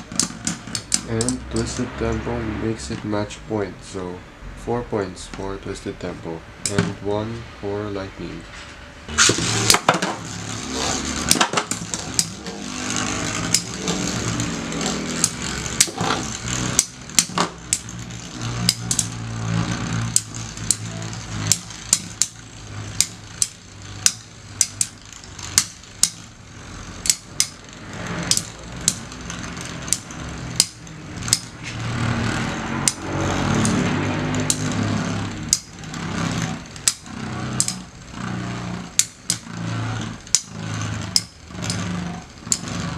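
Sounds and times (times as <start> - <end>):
spinning tops clashing with clicks: 0.0 - 1.8, 9.1 - 42.9
spinning tops whirring: 0.0 - 4.2, 5.4 - 42.9.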